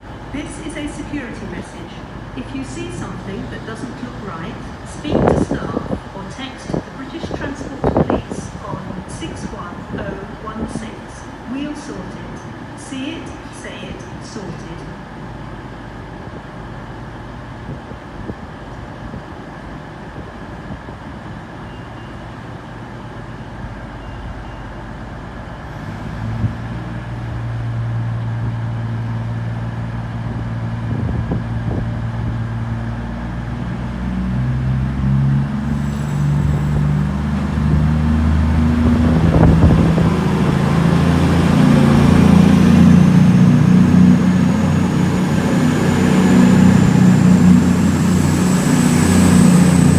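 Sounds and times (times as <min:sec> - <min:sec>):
diesel train engines throttling up: 0:00.0 - 0:49.9
faint rising whine: 0:34.7 - 0:49.9.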